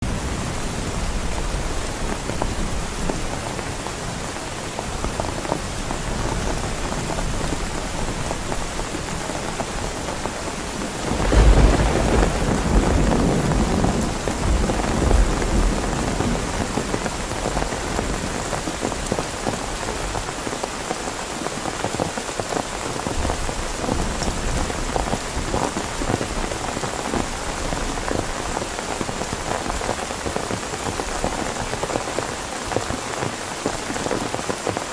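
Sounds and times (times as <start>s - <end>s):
heavy rain: 0.0s - 34.9s
thunder rumble: 10.7s - 18.5s.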